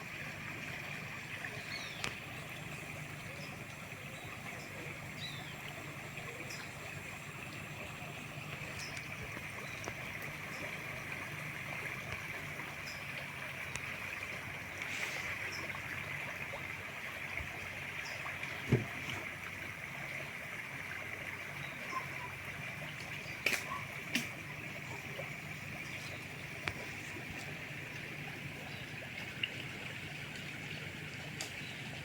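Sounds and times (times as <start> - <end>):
river water flowing: 0.0 - 32.0.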